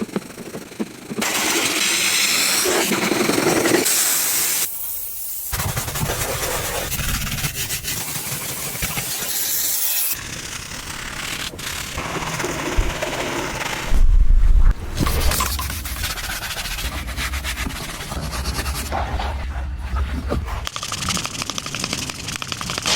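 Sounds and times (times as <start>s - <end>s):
pressure washer spraying: 7.2s - 10.2s.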